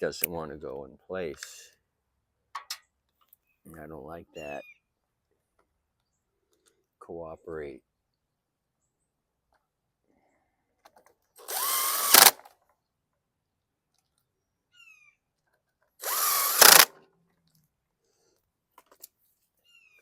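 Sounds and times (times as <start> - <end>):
power drill driving bolts: 11.4 - 12.5, 16.0 - 17.0.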